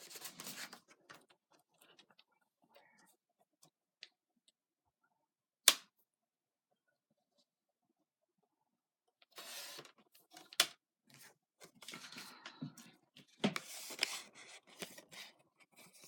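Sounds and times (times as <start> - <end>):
paper and packaging rustling: 0.0 - 2.2, 13.2 - 16.0.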